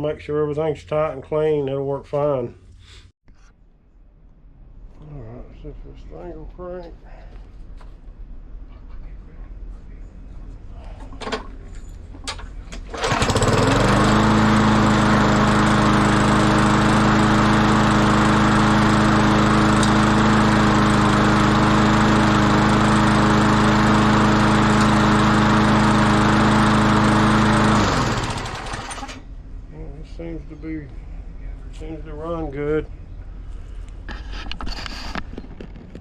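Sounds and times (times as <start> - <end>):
lawn mower engine running: 12.8 - 29.2.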